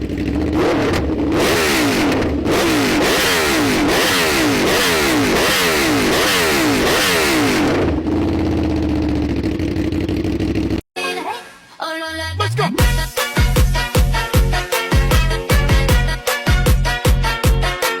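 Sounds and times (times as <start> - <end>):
motorcycle engine accelerating: 0.0 - 10.8.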